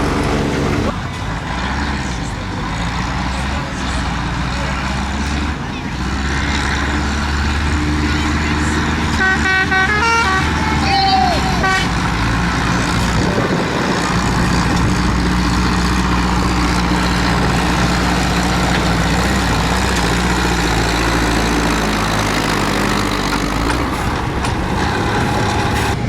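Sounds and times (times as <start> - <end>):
tractor diesel engines running: 0.0 - 26.0.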